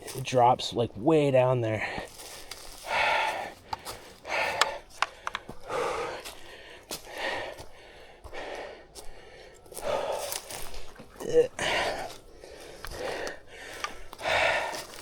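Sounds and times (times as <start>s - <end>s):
person breathing hard: 1.8s - 15.0s
sharp clicks: 3.6s - 5.5s.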